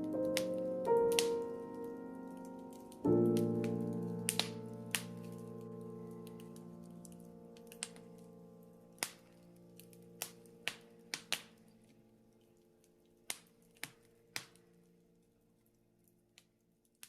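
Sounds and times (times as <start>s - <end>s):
wood fire crackling: 0.0s - 17.0s
sharp pops of fire: 3.1s - 5.4s, 7.6s - 8.2s, 9.0s - 11.8s, 13.2s - 14.7s.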